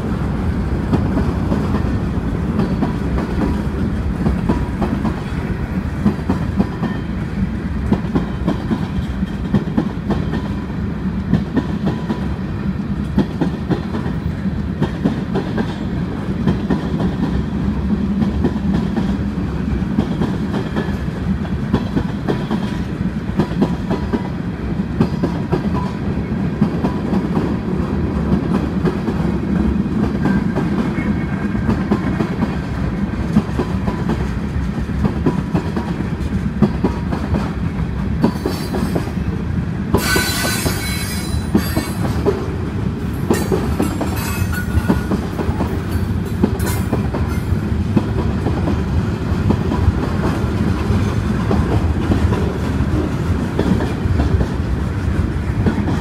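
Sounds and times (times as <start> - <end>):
freight train rumble: 0.0 - 56.0
wheels clacking over rail joints: 39.9 - 56.0.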